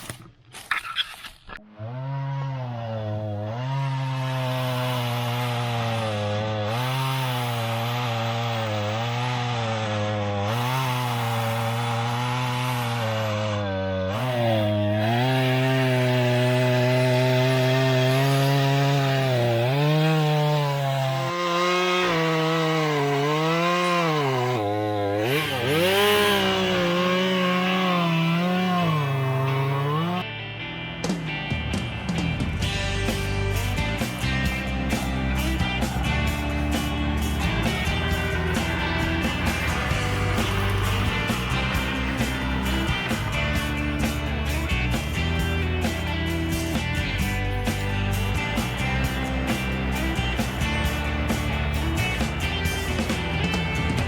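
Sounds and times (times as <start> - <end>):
chainsaw cutting wood: 0.0 - 30.3, 31.9 - 54.0.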